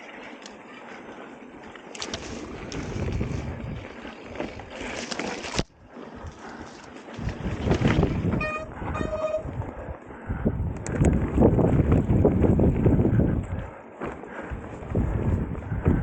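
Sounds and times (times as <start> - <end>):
bicycle rumble on trail: 0.0 - 16.0
wind buffeting microphone: 2.1 - 5.0, 6.1 - 16.0
short high-pitched squeaks: 8.3 - 9.6.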